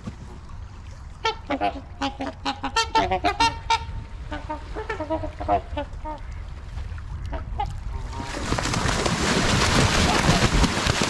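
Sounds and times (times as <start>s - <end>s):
swans and geese honking: 1.2s - 6.4s.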